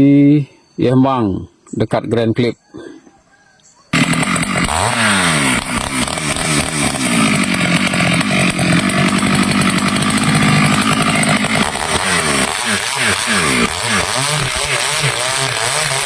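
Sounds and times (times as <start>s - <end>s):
chainsaw running at high revs: 3.9s - 16.0s.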